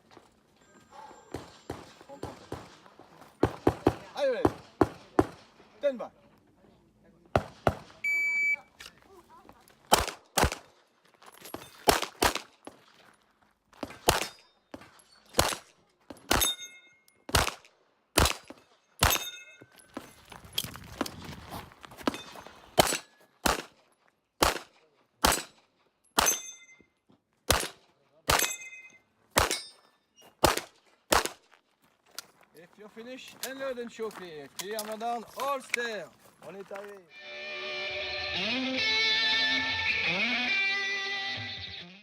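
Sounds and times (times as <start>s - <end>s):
pistol shots: 1.3s - 2.8s, 3.4s - 5.6s, 7.3s - 8.0s, 9.9s - 10.8s, 11.8s - 12.6s, 13.8s - 14.4s, 15.3s - 16.6s, 17.3s - 19.4s, 22.8s - 23.8s, 24.4s - 25.6s, 26.2s - 26.4s, 27.5s - 28.7s, 29.4s - 29.7s, 30.4s - 31.4s
metallic ringing tone: 16.5s - 17.2s.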